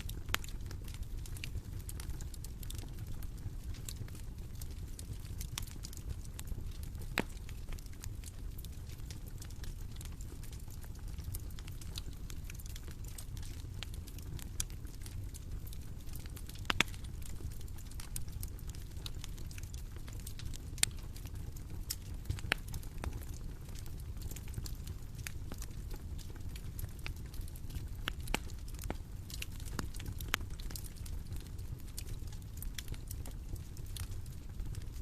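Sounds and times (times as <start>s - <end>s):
bonfire crackling: 0.0s - 35.0s
sharp fire pops: 7.1s - 7.6s.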